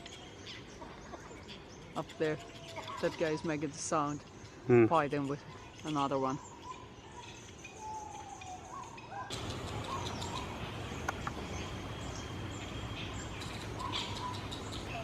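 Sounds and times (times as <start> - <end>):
background hiss: 9.3 - 15.0
fruit bats squeaking and chirping: 9.3 - 15.0.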